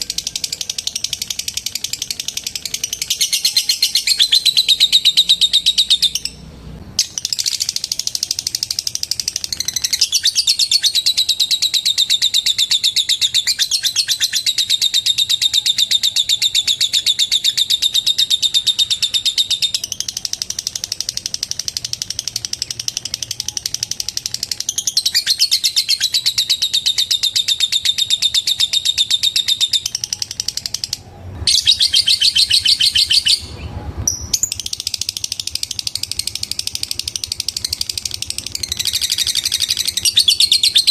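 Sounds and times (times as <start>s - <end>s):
lovebird chattering: 0.0s - 40.9s.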